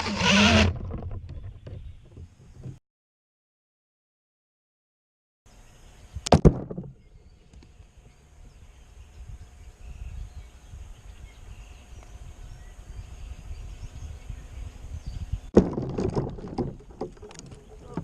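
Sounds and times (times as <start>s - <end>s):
low rumbling wind noise: 6.9s - 18.0s.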